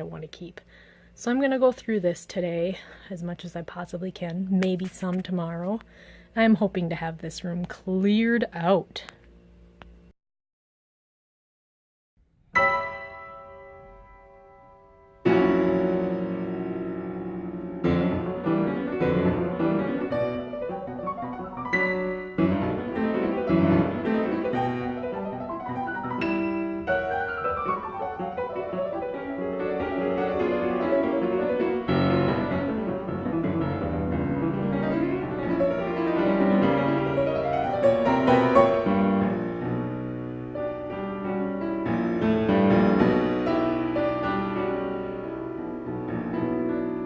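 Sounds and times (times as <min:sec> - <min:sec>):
gentle piano music: 0:12.6 - 0:47.0.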